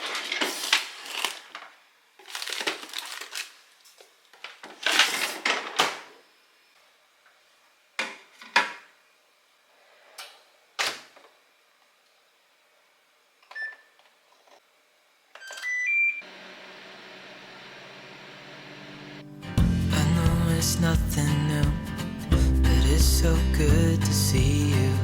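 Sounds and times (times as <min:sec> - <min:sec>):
microwave keypad beeps: 0:13.5 - 0:13.9, 0:15.4 - 0:16.2
microwave oven humming: 0:15.8 - 0:25.0.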